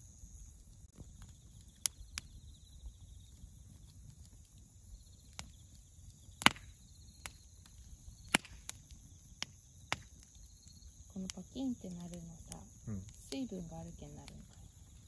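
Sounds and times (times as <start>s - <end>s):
campfire crackling and popping: 0.0s - 15.0s
crickets chirring: 0.0s - 15.0s
person speaking: 12.9s - 13.1s.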